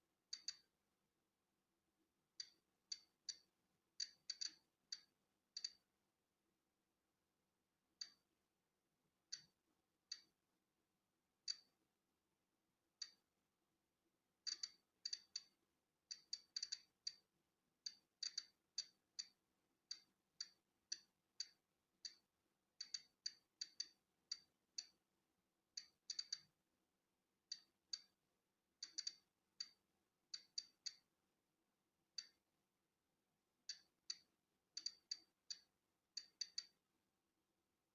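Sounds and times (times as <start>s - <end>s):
geiger counter clicking: 0.3s - 0.7s, 2.4s - 5.8s, 11.5s - 11.7s, 14.4s - 17.3s, 17.9s - 25.0s, 25.8s - 26.6s, 27.5s - 28.2s, 28.8s - 31.1s, 32.2s - 32.4s, 33.7s - 36.8s.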